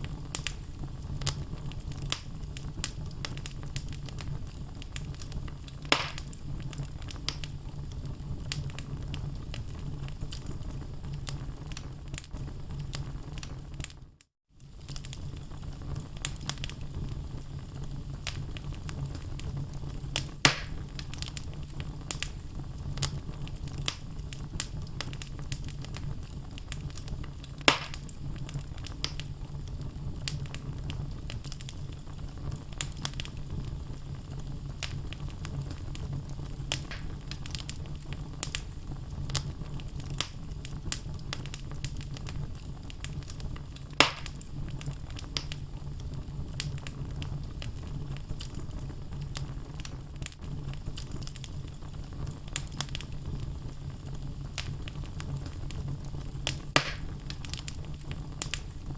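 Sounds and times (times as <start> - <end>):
loud pops of burning logs: 0.0 - 14.0, 14.6 - 58.9
fire crackling: 0.0 - 58.9
fire rumbling: 0.0 - 58.9.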